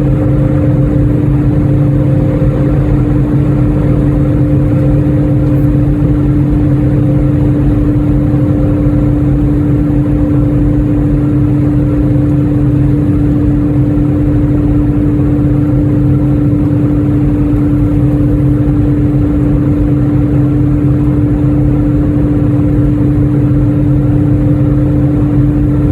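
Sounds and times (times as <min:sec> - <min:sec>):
aircraft engines droning: 0:00.0 - 0:25.9.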